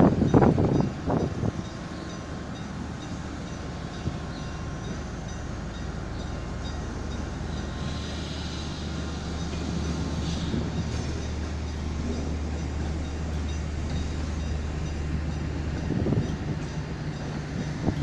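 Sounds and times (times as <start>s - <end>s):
diesel locomotive engine hum: 0.0s - 18.0s.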